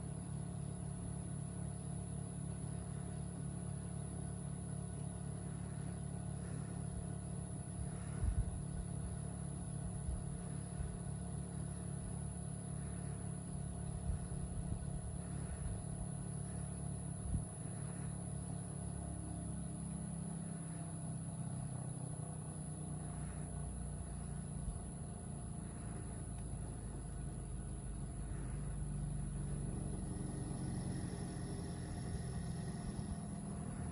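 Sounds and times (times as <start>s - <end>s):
heat pump humming: 23.2s - 33.9s.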